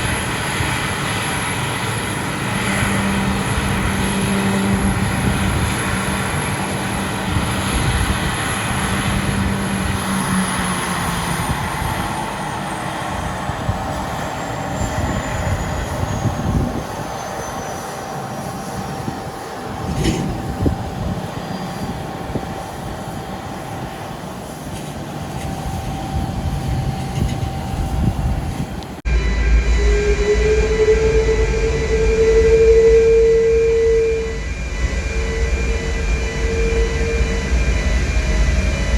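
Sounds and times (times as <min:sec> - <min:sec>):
jet engine whine spooling down: 0:00.0 - 0:38.9
mid-pitched hum: 0:25.4 - 0:38.9.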